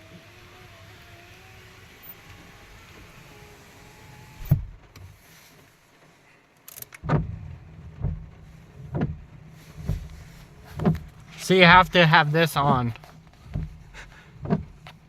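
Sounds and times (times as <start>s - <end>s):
car power window motor: 0.0s - 5.2s, 6.7s - 12.0s, 12.6s - 15.0s
window glass thump: 4.4s - 4.8s, 7.0s - 7.4s, 8.0s - 8.3s, 8.9s - 10.1s, 10.8s - 11.2s, 13.5s - 13.8s, 14.4s - 14.8s
heavy thuds: 7.0s - 15.0s.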